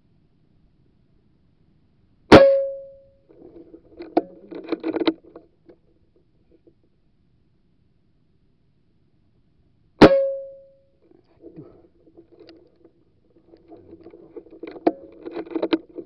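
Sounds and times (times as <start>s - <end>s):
short ringing tone: 2.4s - 3.1s, 10.0s - 10.8s
rattling clicks and knocks: 13.5s - 16.0s.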